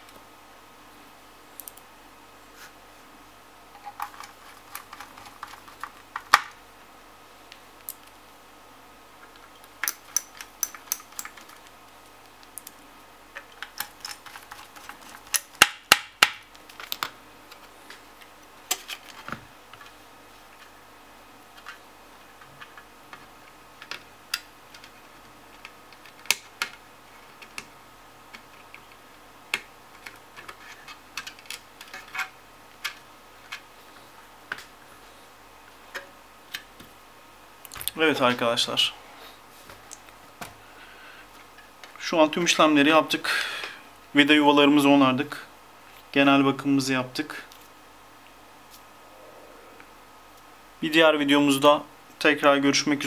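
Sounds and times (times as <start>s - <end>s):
small metal and plastic parts clicking: 3.8s - 6.5s, 9.4s - 11.7s, 13.4s - 15.6s.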